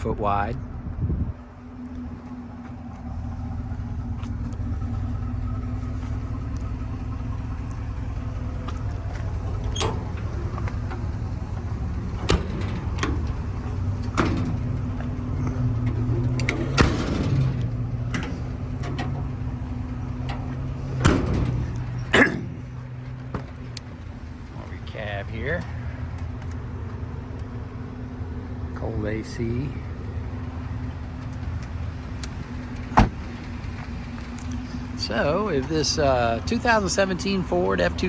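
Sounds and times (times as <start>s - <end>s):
truck engine idling: 0.0s - 38.0s
doors and latches clunking: 7.6s - 26.6s, 30.0s - 34.7s.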